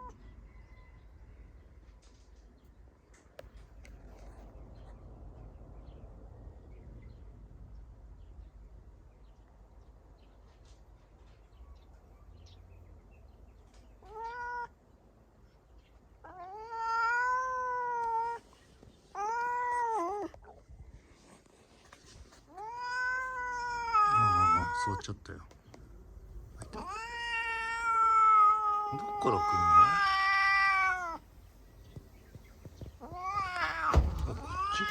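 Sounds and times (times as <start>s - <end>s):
cat yowling: 14.0s - 14.7s, 16.2s - 18.4s, 19.2s - 20.4s, 22.6s - 25.0s, 26.6s - 34.9s.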